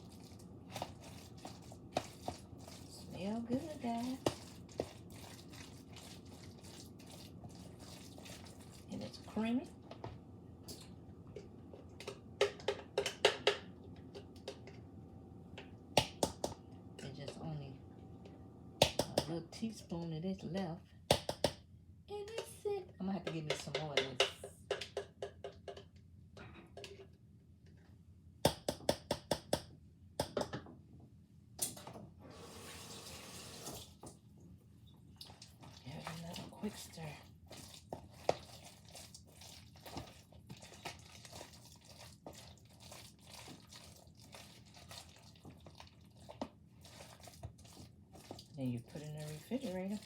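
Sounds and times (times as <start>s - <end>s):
spoon knocking and scraping dish: 12.0s - 14.8s, 23.2s - 25.9s
utensil knocking against container: 23.2s - 25.9s.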